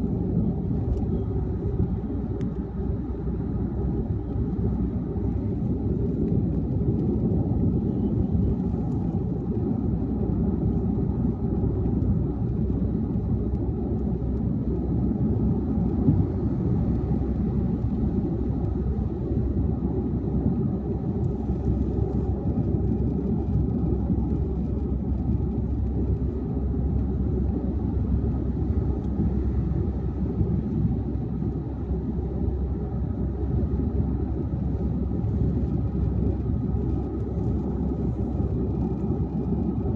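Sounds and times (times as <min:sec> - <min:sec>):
car engine hum: 0:00.0 - 0:39.9.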